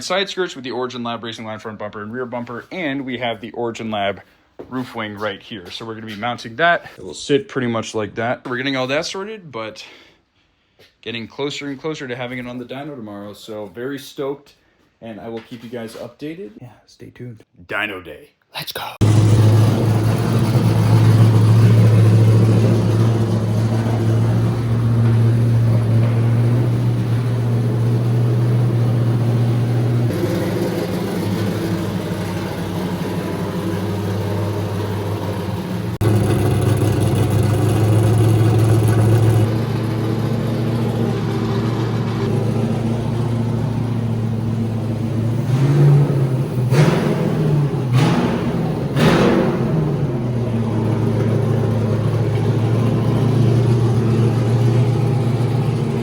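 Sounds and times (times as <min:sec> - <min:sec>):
car engine idling: 0:19.0 - 0:56.0.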